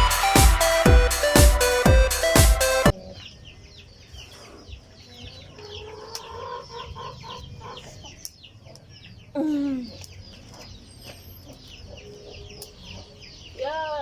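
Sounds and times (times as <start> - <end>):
electronic dance music: 0.0 - 2.9
chickens clucking and cheeping: 0.0 - 14.0.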